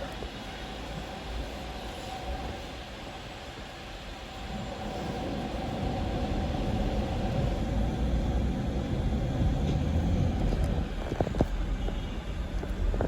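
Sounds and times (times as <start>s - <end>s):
motor traffic rumble: 5.9s - 13.0s.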